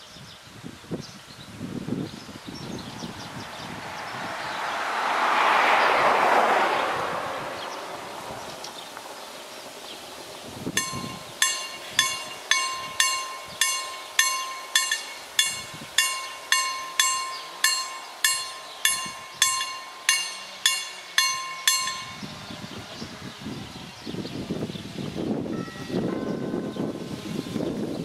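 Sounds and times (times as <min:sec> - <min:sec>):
level crossing bell ringing: 0:10.8 - 0:22.5.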